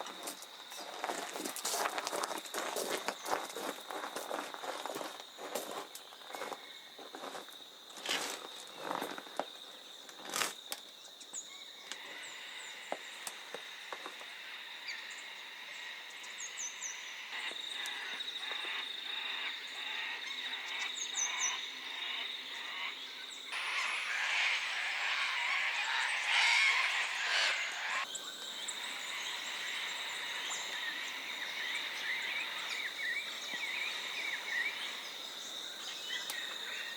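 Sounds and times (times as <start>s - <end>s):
scuffing footsteps: 0.0s - 9.6s
high insect drone: 0.0s - 36.9s
chorus of small calls: 23.5s - 28.1s.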